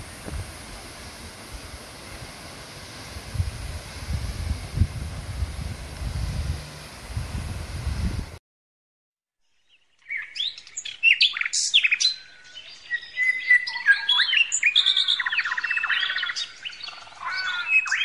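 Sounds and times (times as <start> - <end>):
bird trill: 9.5 - 18.0
birds chirping and singing: 9.7 - 18.0.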